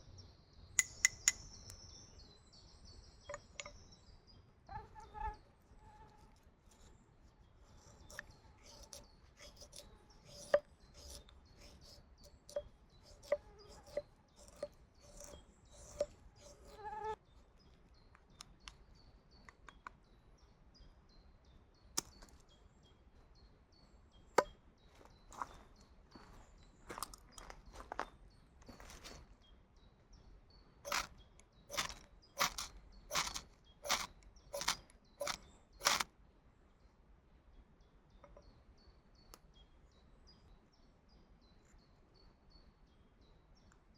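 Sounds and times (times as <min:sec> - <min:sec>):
sharp knocks and clicks: 0:00.8 - 0:01.5, 0:31.7 - 0:36.0
high bird chirps: 0:07.8 - 0:17.2.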